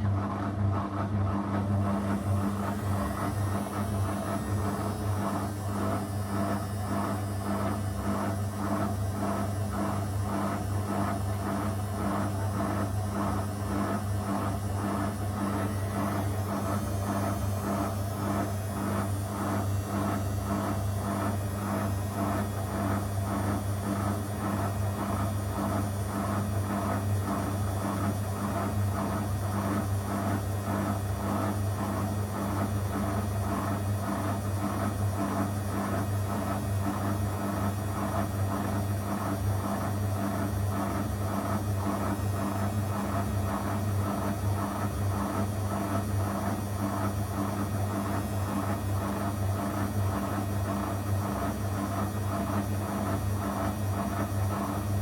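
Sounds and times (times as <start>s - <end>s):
washing machine running: 0.0s - 55.0s.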